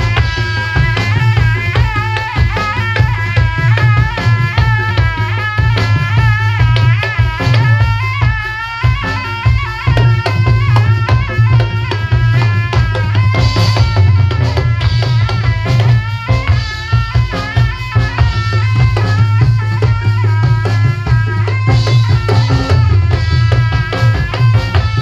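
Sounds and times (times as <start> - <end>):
driving drums: 0.0 - 25.0
live band music: 0.0 - 25.0.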